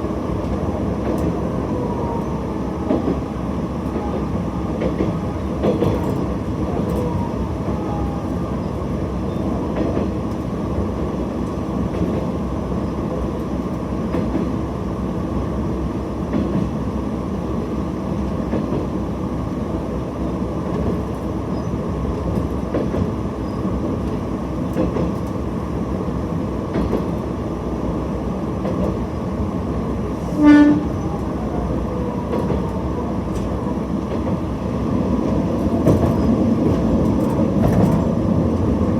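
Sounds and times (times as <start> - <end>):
diesel railcar droning: 0.0 - 38.9
clicks from rail joints: 24.0 - 25.4, 26.7 - 27.2
train horn blast: 30.2 - 31.1.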